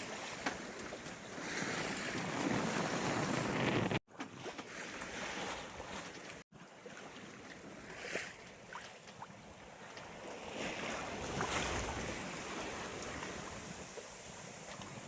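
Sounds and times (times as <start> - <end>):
water washing against hull: 0.0 - 15.0
wind on microphone: 1.6 - 4.0.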